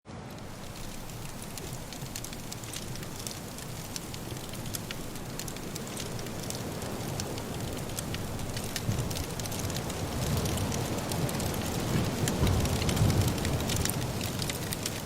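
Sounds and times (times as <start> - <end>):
wood fire crackling: 0.1 - 15.0
wind rushing: 6.7 - 14.8.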